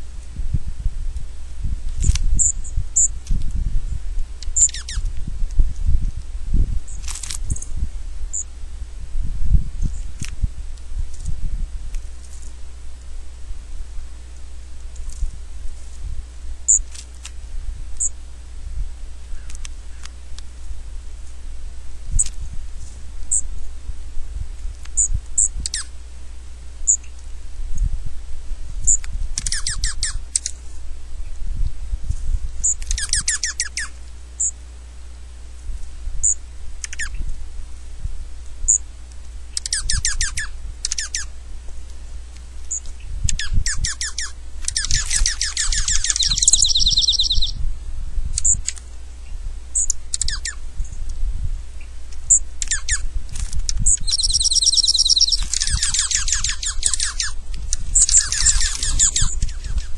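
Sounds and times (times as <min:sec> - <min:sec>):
small birds chirping: 0:01.8 - 0:08.6, 0:09.5 - 0:23.8, 0:24.6 - 0:26.1, 0:26.8 - 0:27.9, 0:28.8 - 0:35.4, 0:36.0 - 0:37.8, 0:38.4 - 0:59.9
rapid chattering bird trills: 0:04.4 - 0:05.1, 0:25.0 - 0:25.9, 0:28.9 - 0:30.6, 0:32.6 - 0:34.6, 0:36.2 - 0:37.3, 0:39.6 - 0:41.4, 0:42.7 - 0:47.6, 0:48.4 - 0:48.8, 0:49.8 - 0:50.6, 0:52.3 - 0:53.1, 0:53.7 - 0:59.9.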